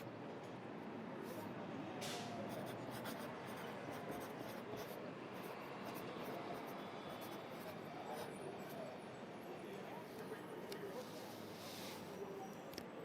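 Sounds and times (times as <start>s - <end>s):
low hum of city ambience: 0.0s - 13.0s
pencil writing on paper: 2.4s - 8.8s.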